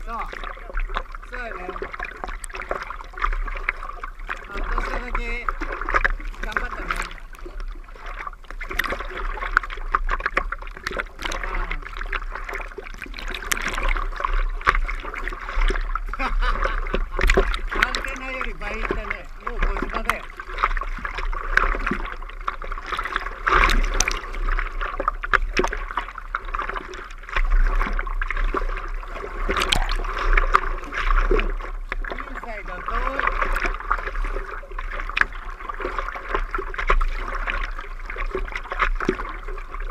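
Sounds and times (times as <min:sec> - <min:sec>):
steady low rumble: 0:00.0 - 0:38.4
water splashing and sloshing: 0:00.0 - 0:39.9.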